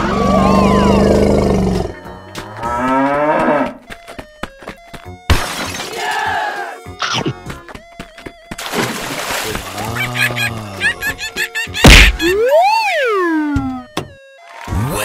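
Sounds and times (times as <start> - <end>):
low buzzy cartoon sound effect: 0.0 - 2.0
cow mooing: 0.0 - 3.8
background music: 0.0 - 15.0
block shattering crash: 5.3 - 5.9.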